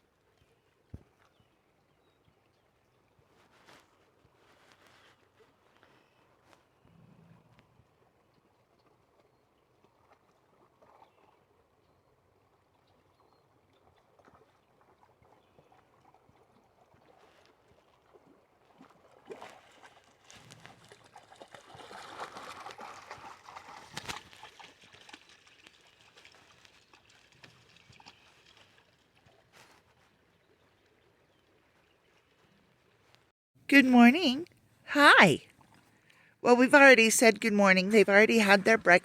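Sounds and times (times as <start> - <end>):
dog splashing in river: 7.8 - 33.0.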